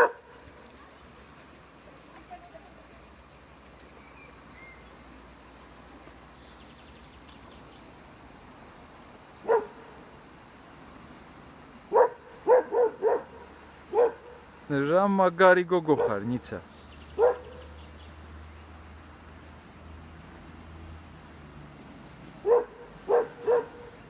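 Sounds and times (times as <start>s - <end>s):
hound barking: 0.0s - 0.3s, 9.4s - 9.9s, 11.9s - 14.4s, 17.2s - 17.7s, 22.4s - 23.9s
faint high hiss: 0.0s - 12.4s.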